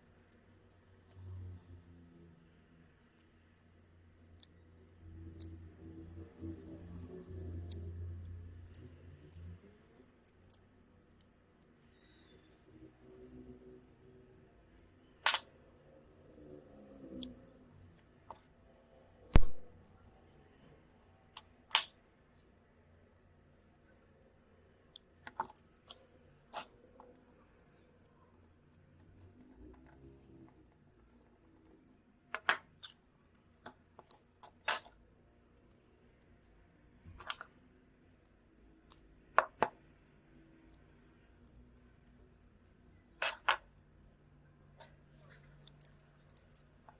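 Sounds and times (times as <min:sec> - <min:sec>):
tools clicking and tapping: 0:07.4 - 0:11.7, 0:44.8 - 0:46.9.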